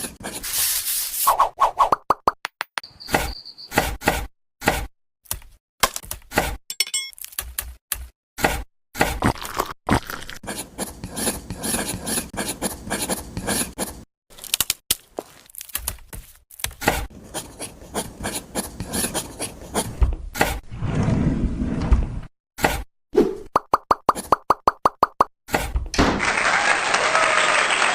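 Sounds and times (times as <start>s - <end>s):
scraping and rubbing by hand: 0.0s - 1.4s.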